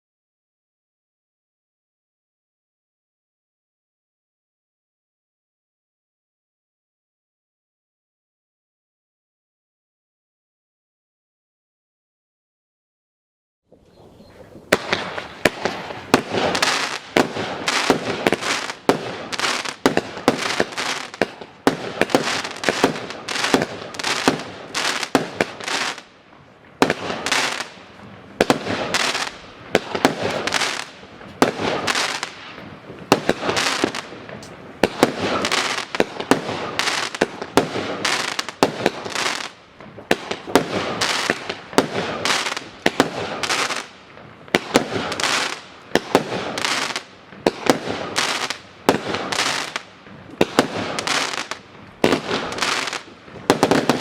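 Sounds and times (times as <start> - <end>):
firework battery shots and bursts: 14.7 - 26.1, 26.8 - 54.0.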